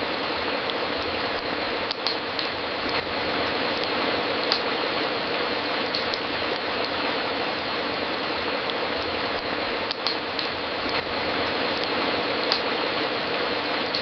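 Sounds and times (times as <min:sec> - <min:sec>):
wood fire crackling: 0:00.0 - 0:14.0
sharp pops of fire: 0:01.0 - 0:03.1, 0:03.8 - 0:04.8, 0:05.9 - 0:07.0, 0:08.6 - 0:11.1, 0:11.8 - 0:12.8.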